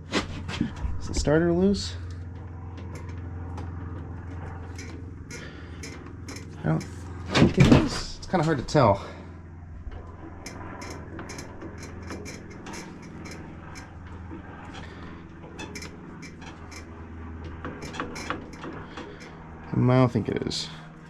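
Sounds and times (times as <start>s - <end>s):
steady low hum: 0.0s - 21.0s
metal engine parts clicking: 1.2s - 8.8s, 9.8s - 19.6s.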